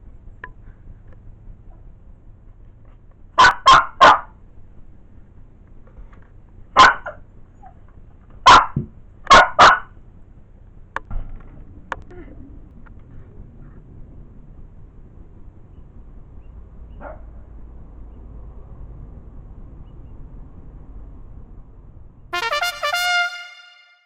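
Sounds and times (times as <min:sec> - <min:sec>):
dog barking: 0:03.4 - 0:04.4, 0:06.8 - 0:07.2, 0:08.5 - 0:09.9, 0:17.0 - 0:17.3.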